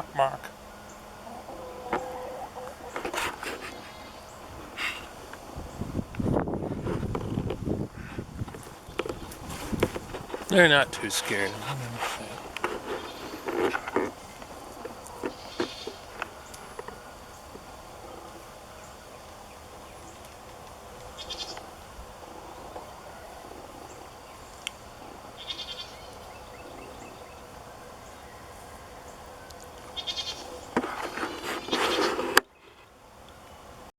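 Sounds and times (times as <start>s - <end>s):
goats bleating: 1.3s - 5.3s, 10.1s - 17.0s, 25.2s - 26.1s, 30.0s - 32.2s
rustling noise: 2.8s - 18.4s, 30.4s - 32.8s.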